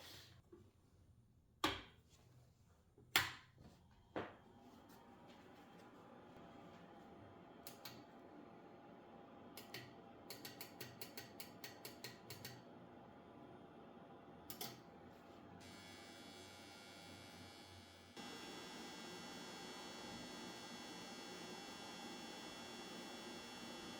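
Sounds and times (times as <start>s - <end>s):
faint high electrical whine: 15.6s - 23.9s.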